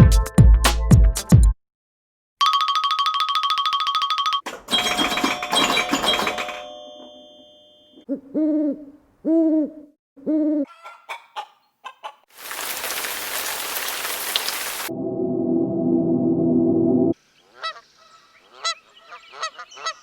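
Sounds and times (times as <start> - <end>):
ringing chime-like sound: 2.4 - 8.0
owl hooting: 8.1 - 11.5.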